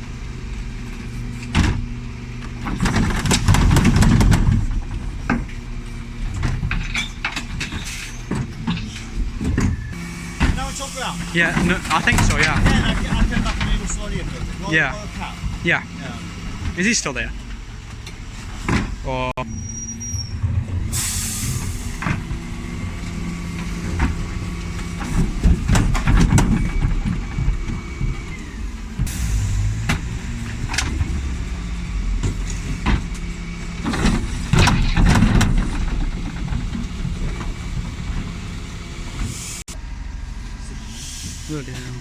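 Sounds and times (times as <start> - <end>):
diesel engine running: 0.0 - 42.0
air hisses: 40.8 - 41.8.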